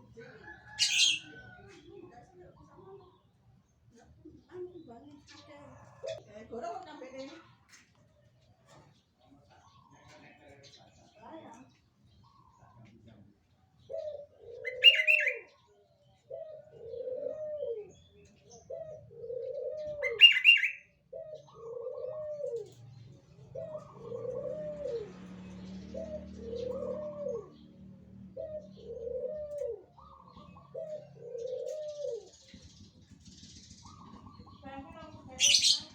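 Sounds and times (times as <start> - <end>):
dove cooing: 0.0 - 3.2, 4.0 - 6.2, 13.7 - 35.9.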